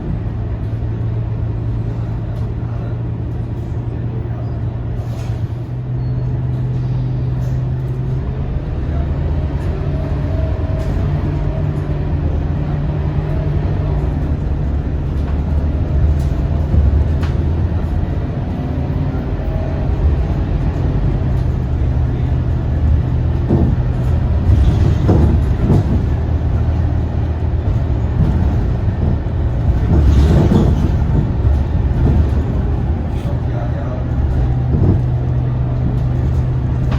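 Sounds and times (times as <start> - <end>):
bus cabin clattering: 0.0 - 36.9
bus diesel engine running: 0.0 - 36.9.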